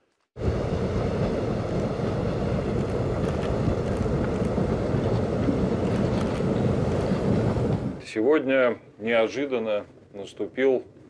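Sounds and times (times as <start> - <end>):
passenger train rumbling: 0.4 - 8.3.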